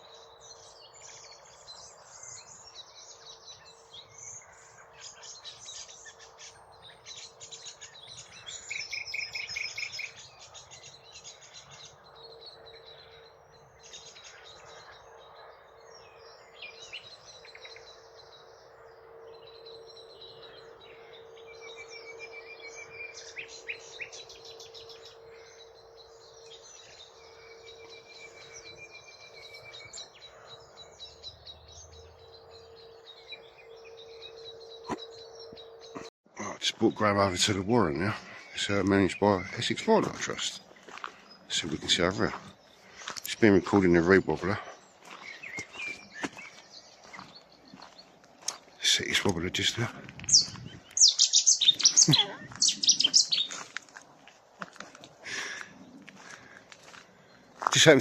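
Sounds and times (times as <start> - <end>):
steady low hum: 0.0 - 38.9
nightingale singing: 0.0 - 54.2.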